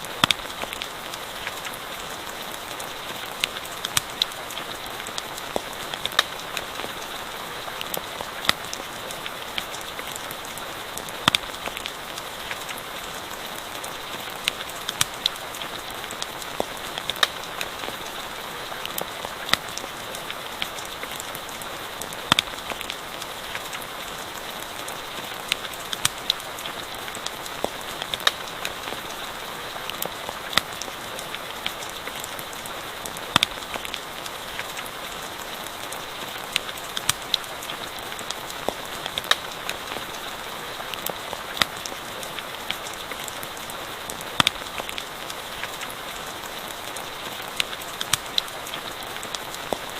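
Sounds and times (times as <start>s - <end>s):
campfire popping and crackling: 0.0s - 49.9s
rain hiss: 0.0s - 49.9s.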